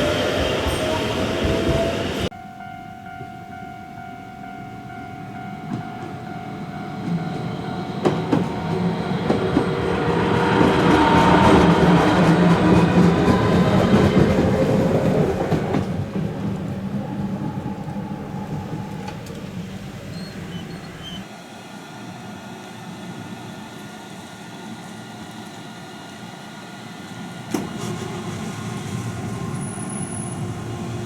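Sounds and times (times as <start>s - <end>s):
tram running past: 0.0s - 21.3s, 22.4s - 31.0s
wheel clacks over rail joints: 5.7s - 21.2s.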